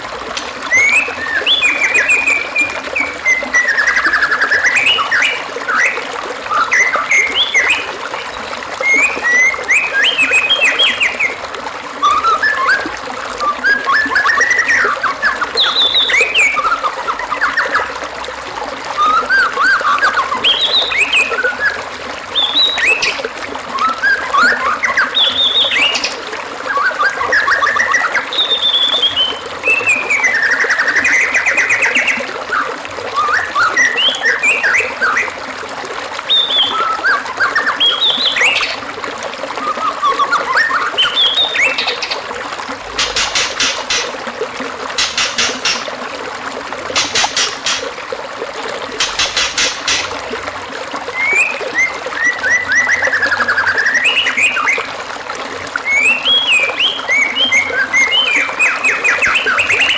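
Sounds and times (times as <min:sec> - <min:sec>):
running water trickling: 0:00.0 - 0:59.9
bird singing whistled phrases: 0:00.7 - 0:07.9, 0:08.8 - 0:11.4, 0:12.0 - 0:17.9, 0:19.0 - 0:35.4, 0:36.3 - 0:38.8, 0:39.6 - 0:42.2, 0:51.1 - 0:54.9, 0:55.8 - 0:59.9.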